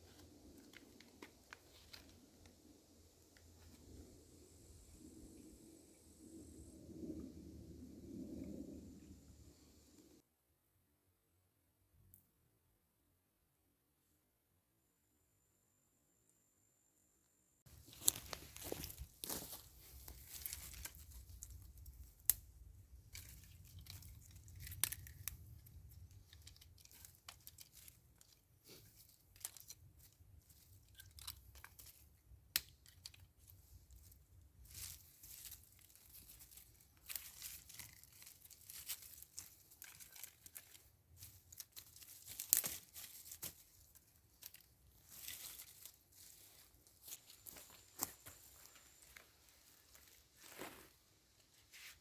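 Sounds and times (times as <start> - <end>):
twigs and leaves crackling: 0.0 - 4.7, 17.7 - 52.0
twigs snapping: 17.8 - 34.1, 34.7 - 48.5.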